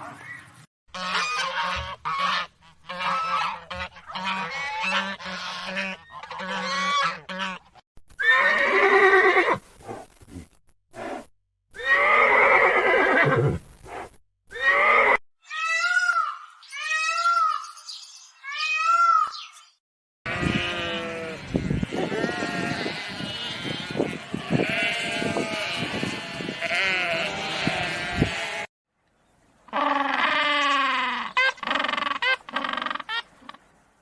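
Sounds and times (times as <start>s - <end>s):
farm animals calling: 0.0s - 10.0s, 11.8s - 15.2s, 20.3s - 28.7s, 29.7s - 33.7s.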